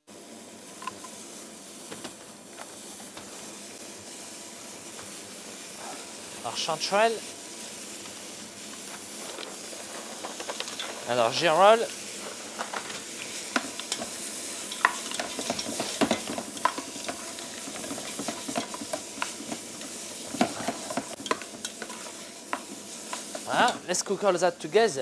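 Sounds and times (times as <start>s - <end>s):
mushrooms sizzling in a pot: 0.0s - 25.0s
wooden spoon scraping and knocking pot: 12.6s - 23.5s.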